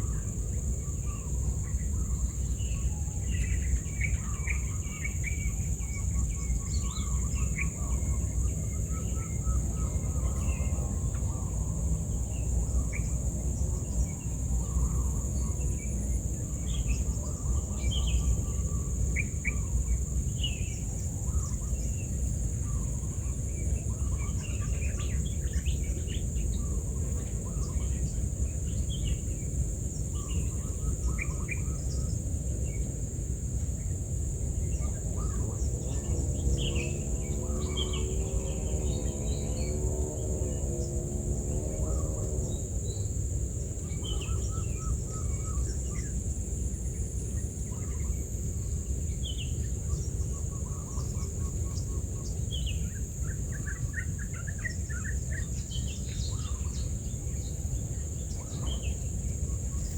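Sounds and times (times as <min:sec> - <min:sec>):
crickets droning: 0:00.0 - 0:59.9
small birds chirping: 0:33.8 - 0:59.9.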